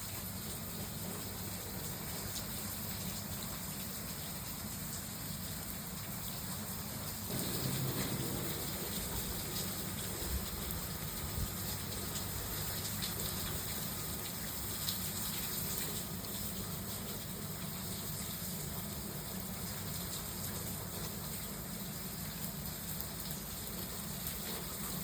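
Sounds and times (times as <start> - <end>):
heavy rain falling: 5.8 - 17.6.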